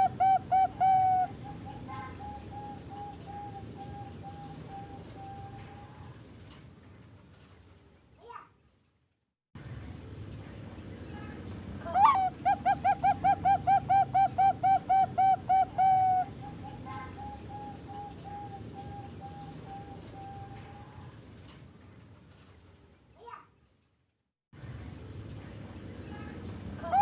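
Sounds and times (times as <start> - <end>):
dove cooing: 0.0 - 6.2, 11.9 - 21.2.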